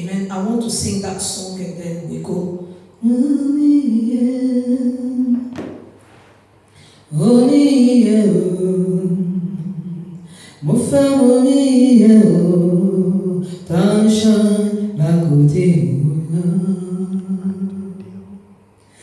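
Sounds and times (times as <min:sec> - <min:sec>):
man singing unaccompanied hymn: 0:00.0 - 0:05.6, 0:07.0 - 0:18.3.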